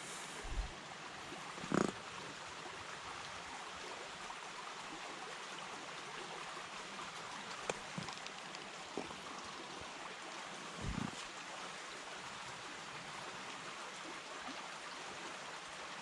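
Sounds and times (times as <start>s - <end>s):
steady rain hiss: 0.0s - 3.8s, 6.0s - 14.0s.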